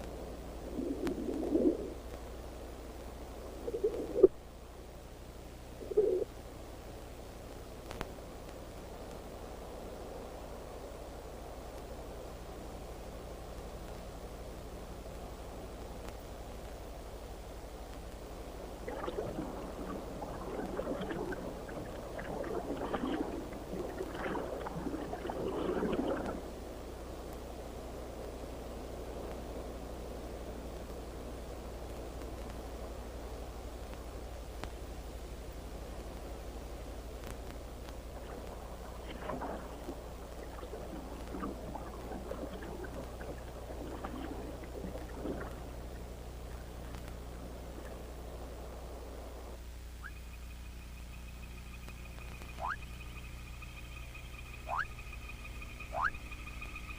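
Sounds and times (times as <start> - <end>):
steady low hum: 0.0 - 56.9
water splashing and sloshing: 18.8 - 26.6, 38.0 - 48.1.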